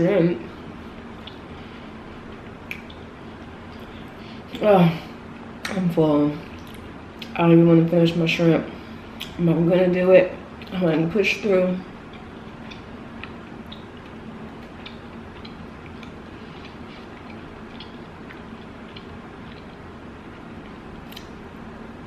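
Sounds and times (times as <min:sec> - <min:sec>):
low room hum: 0:00.0 - 0:22.0
chewing mouth clicks: 0:12.1 - 0:19.8, 0:20.6 - 0:21.4.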